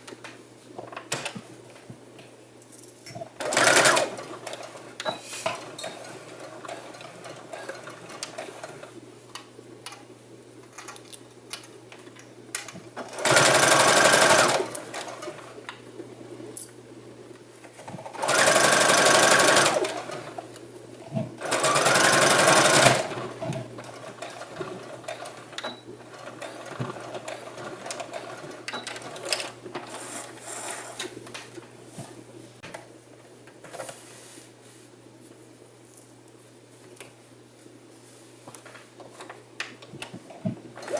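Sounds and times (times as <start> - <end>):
sewing machine stitching: 3.4 - 4.8, 13.0 - 15.5, 18.1 - 20.4, 21.4 - 31.0.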